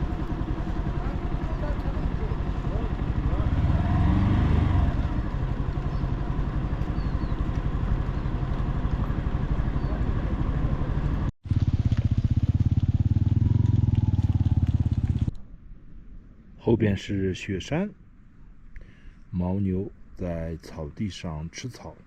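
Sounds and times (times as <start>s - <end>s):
motorcycle engine running: 0.0s - 15.4s.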